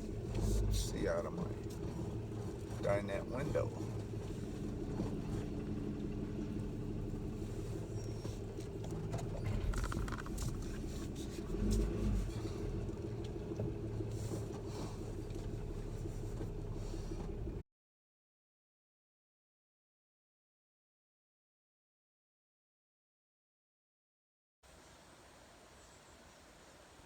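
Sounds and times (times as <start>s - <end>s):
low bumps: 0.0s - 17.6s
pickup truck engine running: 0.0s - 17.6s.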